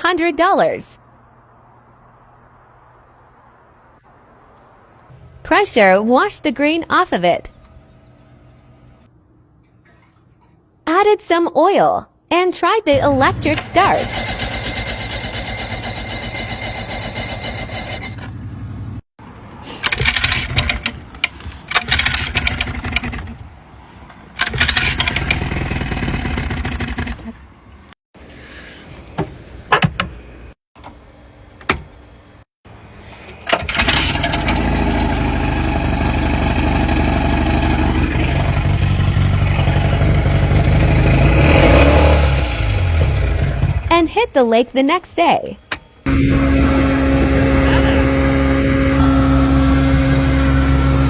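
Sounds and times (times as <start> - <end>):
electric starter cranking boat engine: 13.0 - 18.4, 19.8 - 21.1, 21.7 - 23.4, 24.4 - 27.2, 33.4 - 43.9, 46.1 - 51.0
boat engine running: 13.0 - 19.0, 33.7 - 43.9, 46.1 - 51.0.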